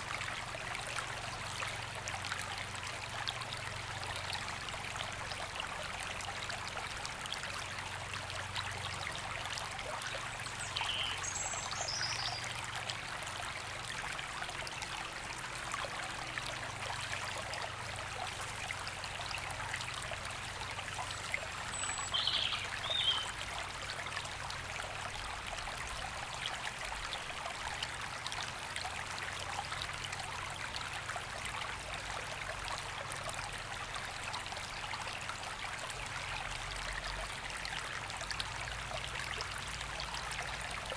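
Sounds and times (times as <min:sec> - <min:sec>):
river water over stones: 0:00.0 - 0:40.9
high bird calls: 0:21.7 - 0:23.3.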